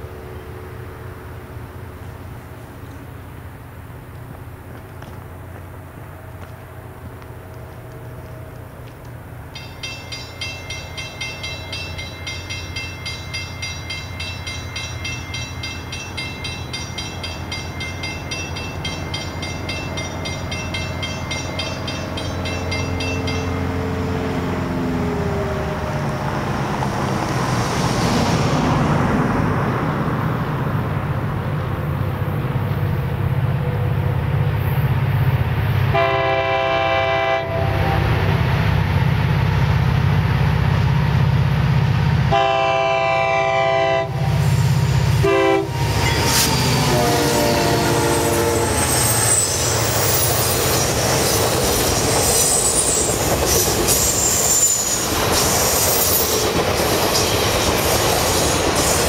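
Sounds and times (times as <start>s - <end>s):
diesel locomotive rumble: 0.0s - 59.0s
crossing warning bell ringing: 9.5s - 24.4s, 42.3s - 58.8s
locomotive air horn blast: 35.9s - 38.3s, 42.3s - 49.1s.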